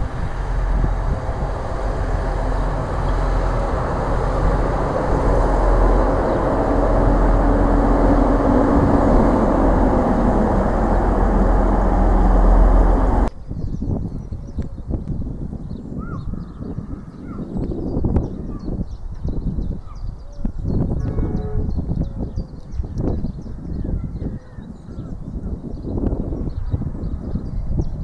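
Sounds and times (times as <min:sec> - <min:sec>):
diesel train passing: 0:00.0 - 0:13.4.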